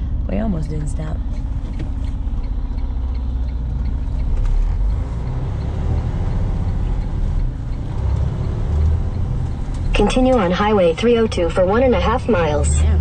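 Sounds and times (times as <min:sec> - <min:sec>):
diesel truck engine rumble: 0:00.0 - 0:13.0.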